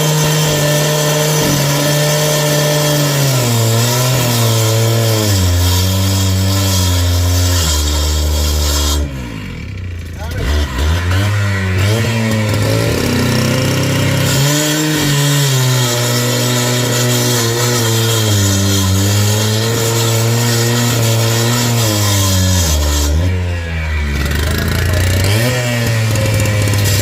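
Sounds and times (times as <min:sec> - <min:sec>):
engine running: 0:09.0 - 0:15.4, 0:23.2 - 0:27.0.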